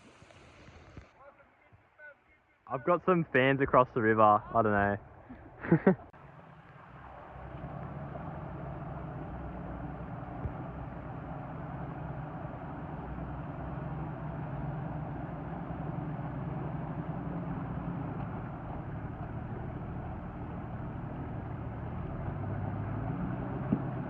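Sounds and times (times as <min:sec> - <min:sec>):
noisy rumble: 0:02.7 - 0:24.0
vehicle engine running: 0:06.1 - 0:24.0.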